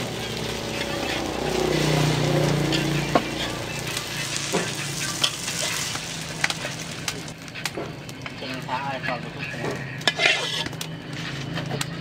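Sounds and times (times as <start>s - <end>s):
low hum: 0.0s - 7.3s
metal spatula scraping a wok: 0.0s - 7.7s, 9.4s - 11.6s
omelette sizzling in a wok: 0.0s - 9.0s.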